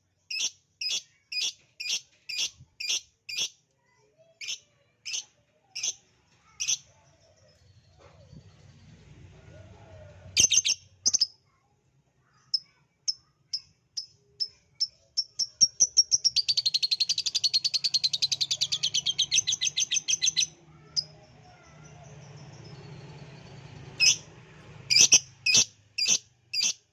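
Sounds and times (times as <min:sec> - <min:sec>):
lovebird chirping and trilling: 0:00.3 - 0:03.6, 0:04.4 - 0:06.0, 0:06.6 - 0:06.9, 0:10.4 - 0:11.4, 0:12.5 - 0:24.3, 0:24.9 - 0:26.9.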